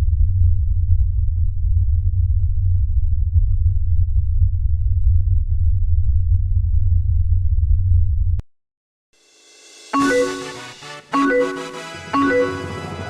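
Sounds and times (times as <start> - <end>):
steady low rumble: 0.0 - 8.4
piano-like music: 10.0 - 13.0.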